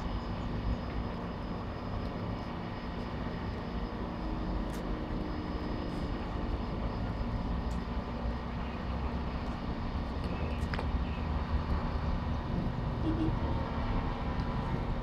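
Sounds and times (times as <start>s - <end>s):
train engine droning: 0.0s - 15.0s.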